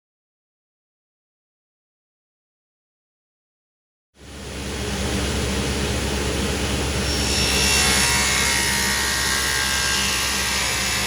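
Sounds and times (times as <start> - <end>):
steady motor hum: 4.2 - 11.0
table saw cutting wood: 5.6 - 11.0.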